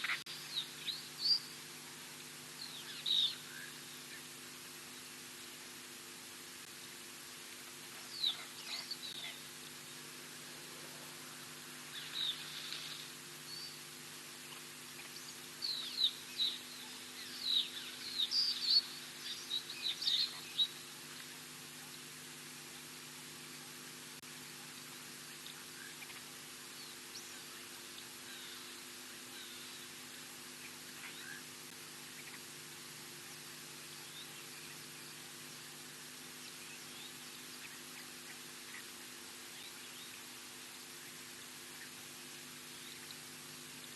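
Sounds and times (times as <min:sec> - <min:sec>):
faint bird chirps: 0:00.0 - 0:01.6, 0:02.5 - 0:05.2, 0:08.0 - 0:10.2, 0:11.2 - 0:23.8, 0:24.6 - 0:32.6
low electrical hum: 0:00.0 - 0:43.9
outdoor hiss: 0:00.0 - 0:43.9
birds chirping: 0:08.0 - 0:09.5, 0:11.1 - 0:21.3.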